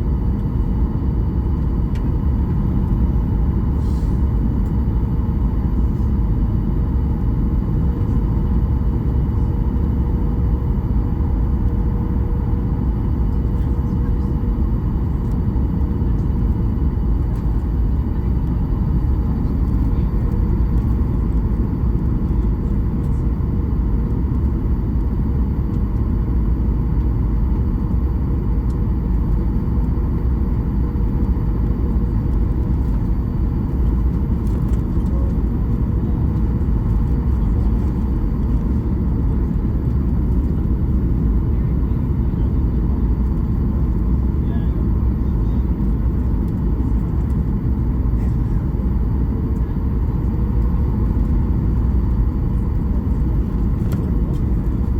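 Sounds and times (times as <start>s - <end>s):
airliner cabin rumble: 0.0s - 54.9s.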